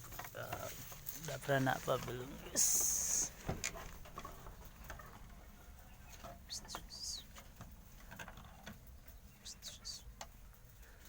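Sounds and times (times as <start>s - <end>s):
light clicks and rustles: 0.0s - 11.0s.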